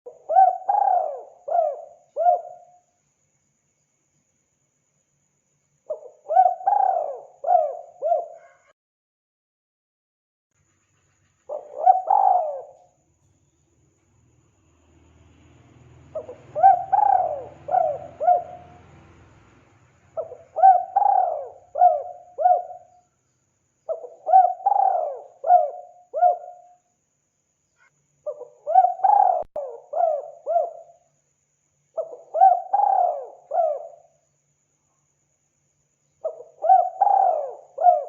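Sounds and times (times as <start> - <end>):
dove cooing: 0.1 - 2.8, 5.9 - 8.6, 11.5 - 12.9, 16.1 - 19.0, 20.2 - 22.9, 23.9 - 26.7, 28.3 - 31.0, 32.0 - 34.1, 36.2 - 38.0.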